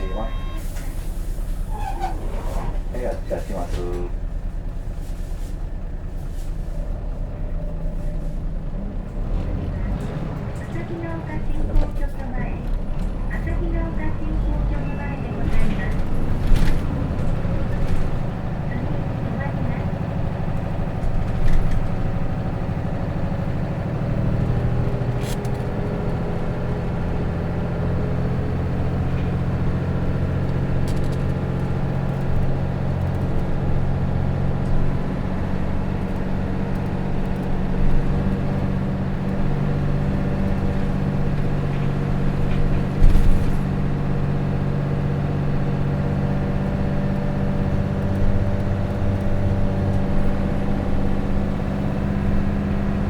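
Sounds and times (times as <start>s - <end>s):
bus diesel engine running: 0.0s - 53.0s.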